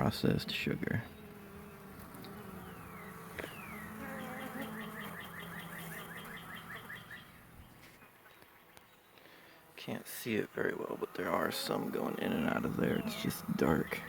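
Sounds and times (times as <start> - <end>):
honeybees buzzing: 0.0 - 14.0.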